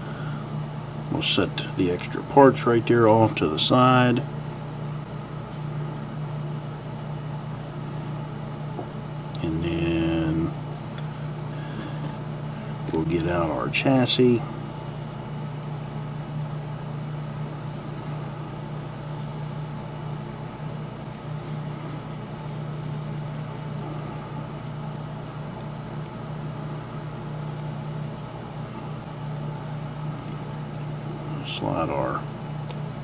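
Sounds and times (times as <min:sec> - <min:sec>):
low machine hum: 0:00.0 - 0:33.0.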